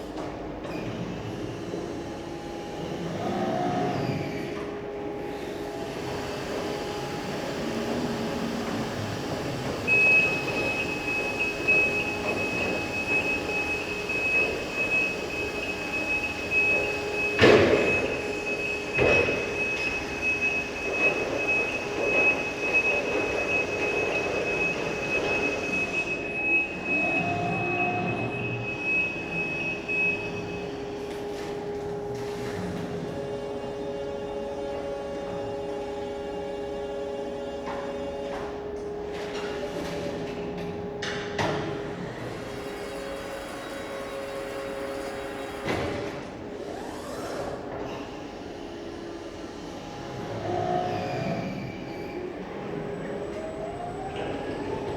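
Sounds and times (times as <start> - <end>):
electric truck motor whining: 41.8 - 54.9.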